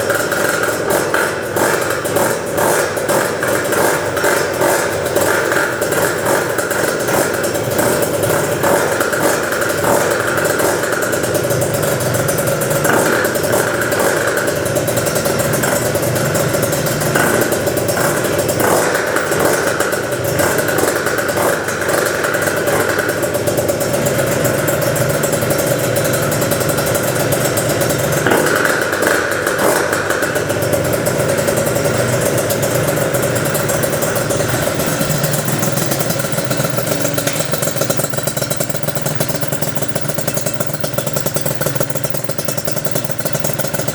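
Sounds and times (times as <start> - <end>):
scooter engine running: 0.0 - 43.9.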